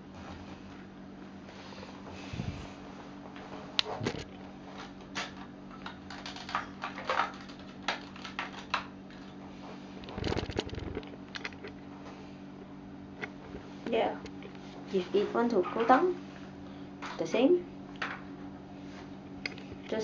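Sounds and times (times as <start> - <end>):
steady low hum: 0.0 - 20.0
plastic parts clicking: 5.2 - 8.9.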